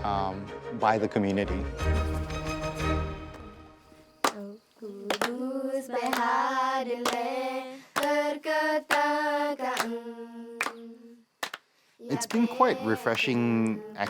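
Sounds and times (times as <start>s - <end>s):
voices chanting held notes: 3.9s - 14.0s.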